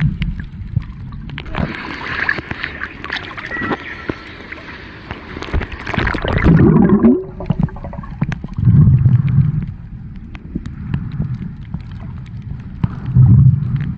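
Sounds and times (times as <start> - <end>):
water splash: 0.0 - 9.1
low underwater rumbles: 0.0 - 13.9
muffled underwater gurgling: 0.0 - 13.9.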